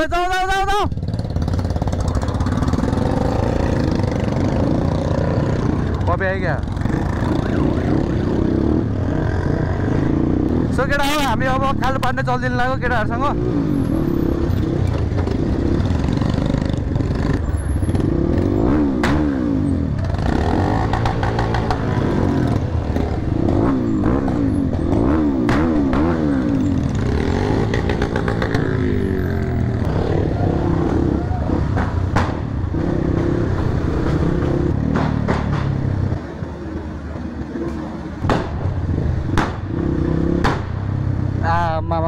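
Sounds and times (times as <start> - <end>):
motorcycle engines revving: 0.0 - 42.0
sharp cracks: 34.8 - 35.9, 38.2 - 40.9.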